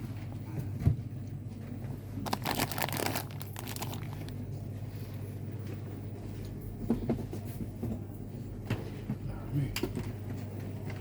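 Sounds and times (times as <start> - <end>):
steady low hum: 0.0 - 11.0
plastic packaging crinkling: 2.2 - 4.5.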